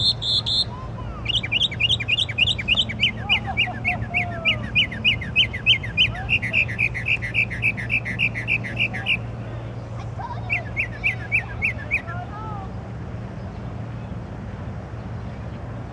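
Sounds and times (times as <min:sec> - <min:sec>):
songbird singing repeated notes: 0:00.0 - 0:09.9, 0:10.5 - 0:14.3.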